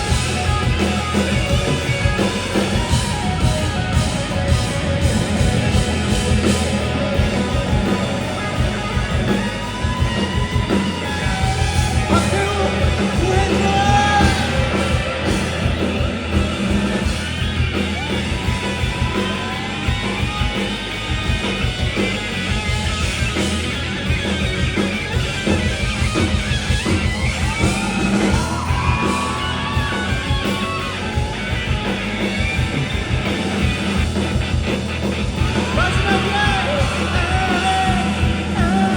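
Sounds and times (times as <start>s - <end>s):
drums: 0.0s - 38.9s
electric guitars: 0.0s - 38.9s
vocalist singing and shouting: 11.0s - 17.2s, 35.4s - 38.9s.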